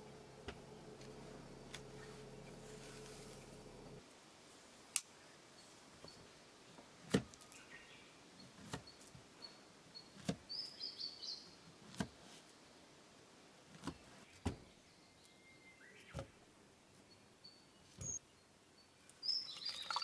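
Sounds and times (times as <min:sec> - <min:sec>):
faint high chirping: 0:14.8 - 0:20.0.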